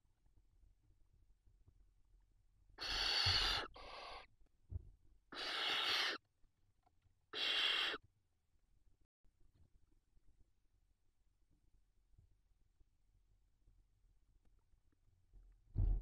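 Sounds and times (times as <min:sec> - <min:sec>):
owls hissing screeches: 0:02.8 - 0:04.3, 0:05.3 - 0:06.2, 0:07.3 - 0:08.0.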